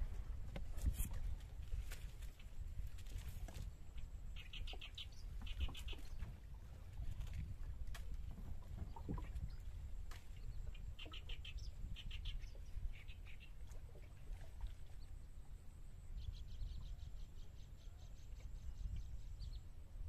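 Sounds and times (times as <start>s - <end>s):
birds chirping: 4.0s - 6.3s.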